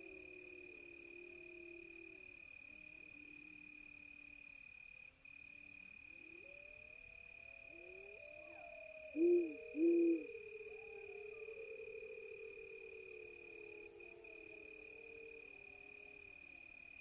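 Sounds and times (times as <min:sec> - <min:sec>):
crickets chirring: 0:00.0 - 0:17.0
distant wolves howling: 0:07.6 - 0:16.4
owl hooting: 0:08.2 - 0:12.6.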